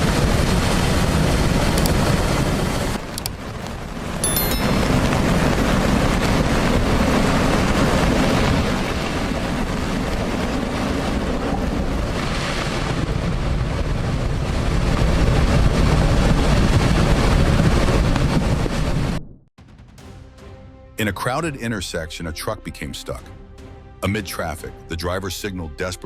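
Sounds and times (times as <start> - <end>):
floodwater rushing: 0.0 - 18.2
wind noise on microphone: 0.0 - 19.2.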